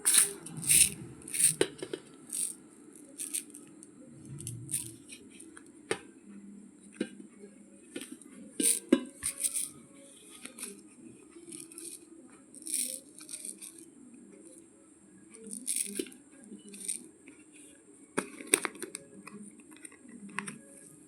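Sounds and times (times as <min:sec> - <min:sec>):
rice grains crackling and clicking: 0:00.0 - 0:03.8, 0:04.4 - 0:05.3, 0:08.6 - 0:09.7, 0:11.4 - 0:13.8, 0:15.5 - 0:17.0.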